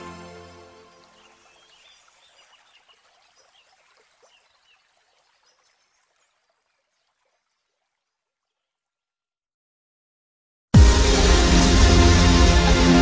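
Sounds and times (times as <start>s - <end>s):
faint trickling water: 0.3s - 9.2s.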